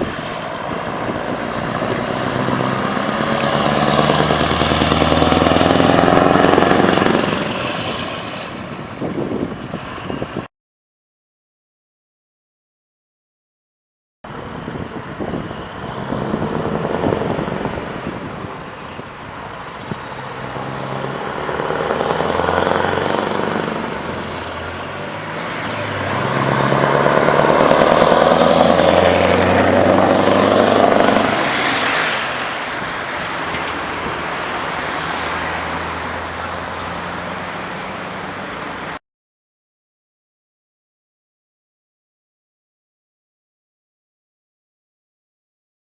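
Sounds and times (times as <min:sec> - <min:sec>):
truck engine accelerating: 0:00.0 - 0:10.5, 0:14.3 - 0:39.0.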